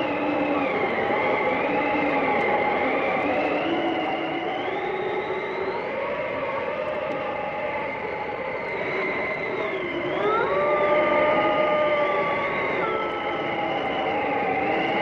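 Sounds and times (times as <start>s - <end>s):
howling blizzard wind: 0.0s - 15.0s.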